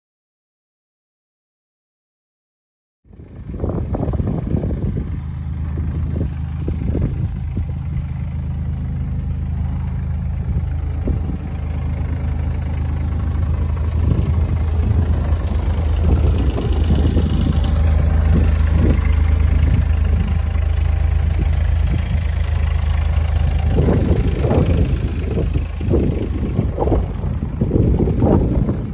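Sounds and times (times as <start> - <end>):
diesel engine idling: 3.1 - 28.9.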